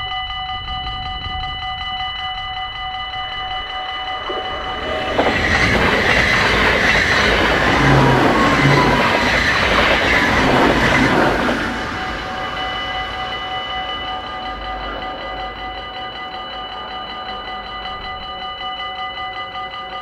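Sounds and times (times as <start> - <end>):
level crossing bells ringing: 0.2 - 20.0
train passing at speed: 3.4 - 18.8.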